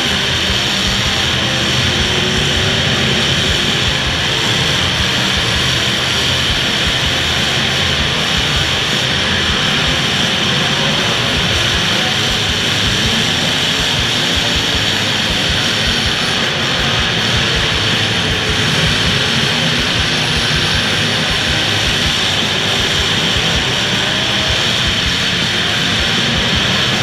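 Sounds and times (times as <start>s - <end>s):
demolition derby car engines: 0.0s - 27.0s.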